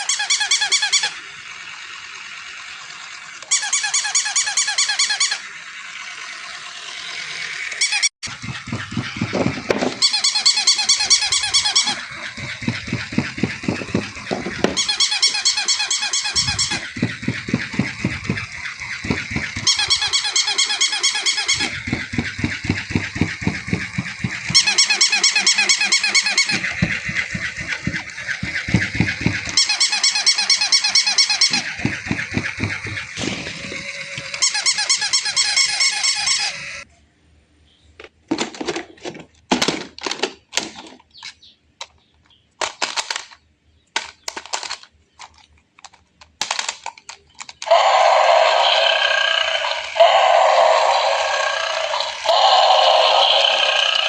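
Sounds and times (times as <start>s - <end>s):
electronic toy squeaky chirping: 0.0s - 1.2s, 3.4s - 5.6s, 7.6s - 36.9s, 47.6s - 54.0s
toy motor pulsing: 0.0s - 36.9s, 46.5s - 54.0s.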